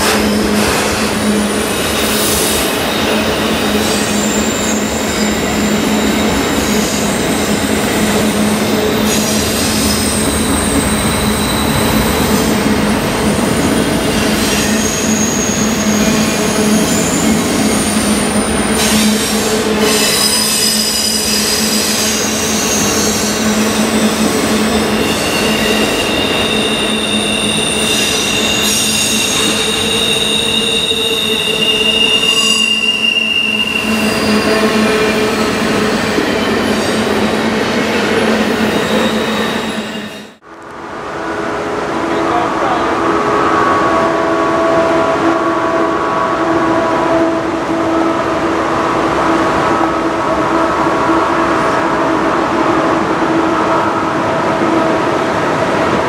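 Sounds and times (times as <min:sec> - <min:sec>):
wheels squealing on rails: 0:00.0 - 0:40.4.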